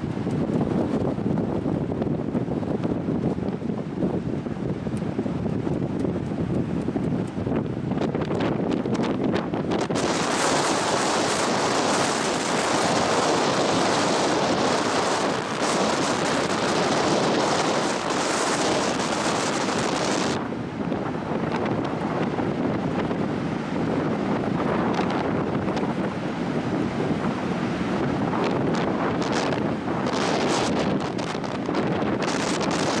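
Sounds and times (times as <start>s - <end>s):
wind buffeting microphone: 0.0s - 33.0s
surf breaking on beach: 7.7s - 33.0s.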